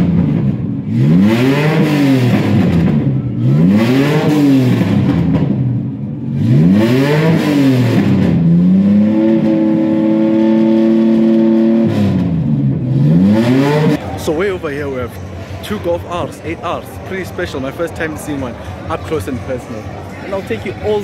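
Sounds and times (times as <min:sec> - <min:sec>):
car engine revving: 0:00.0 - 0:15.6.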